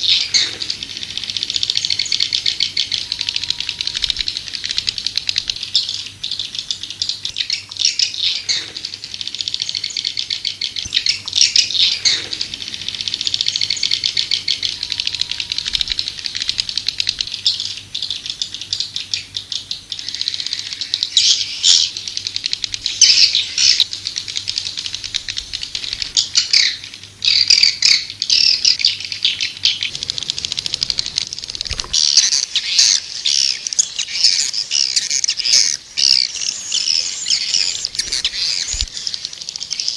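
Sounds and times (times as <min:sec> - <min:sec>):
swiftlets twittering: 0:00.0 - 0:18.0, 0:29.5 - 0:39.9.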